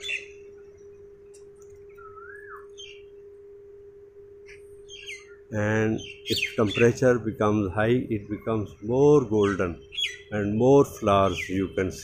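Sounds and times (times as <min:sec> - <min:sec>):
birds chirping: 0:00.0 - 0:12.0
steady humming tone: 0:00.0 - 0:12.0
bird whistled call: 0:01.9 - 0:03.1.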